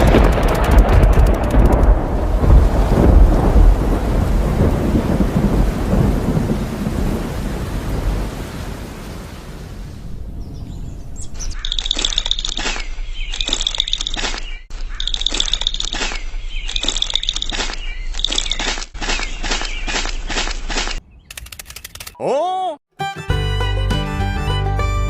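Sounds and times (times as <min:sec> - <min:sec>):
deep rumble of thunder: 0:00.0 - 0:11.6
birds chirping: 0:10.0 - 0:22.0.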